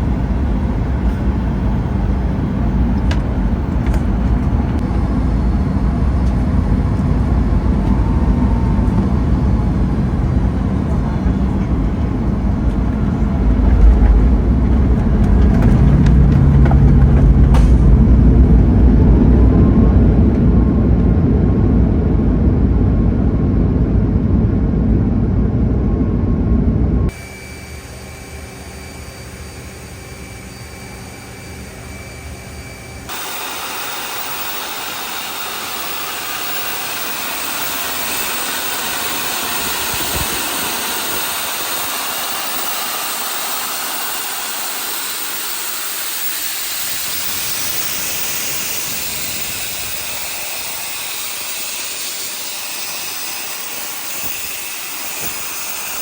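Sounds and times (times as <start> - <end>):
loud deep engine noise: 0.0 - 56.0
steady hiss: 32.2 - 56.0.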